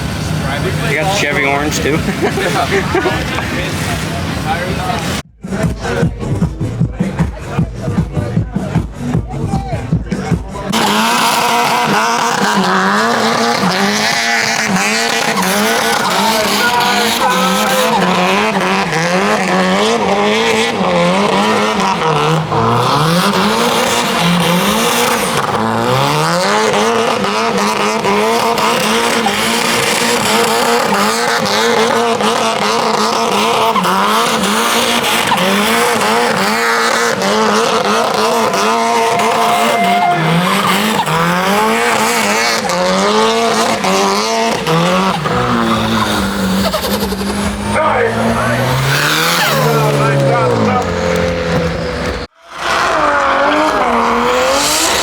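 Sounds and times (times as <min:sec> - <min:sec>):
car engine at high revs: 0:00.0 - 0:55.0
tyre squeal: 0:10.8 - 0:19.6, 0:37.6 - 0:53.4.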